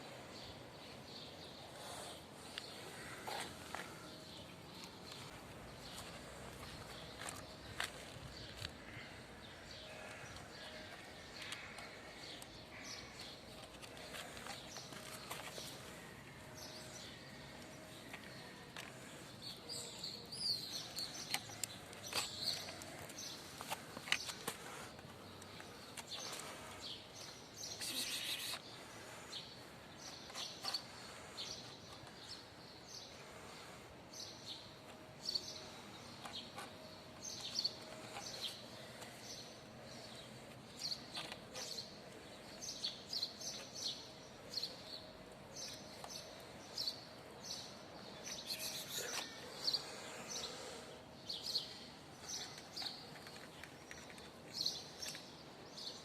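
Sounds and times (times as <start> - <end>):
outdoor background noise: 0.0 - 56.0
small birds chirping: 0.0 - 56.0.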